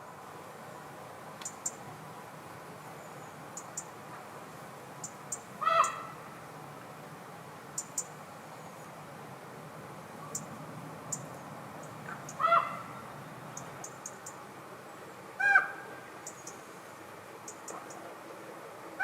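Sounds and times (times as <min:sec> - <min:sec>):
harsh bird call: 0:05.6 - 0:06.2, 0:12.1 - 0:13.1.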